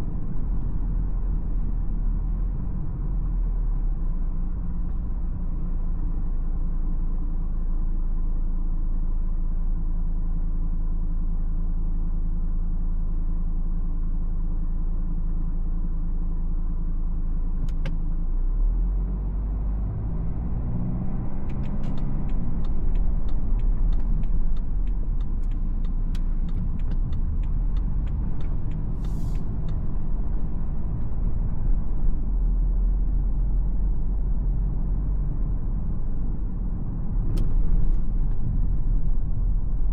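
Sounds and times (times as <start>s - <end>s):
car engine and tyre rumble: 0.0s - 39.9s
regular ticks: 21.5s - 28.9s
short hiss: 29.0s - 29.5s.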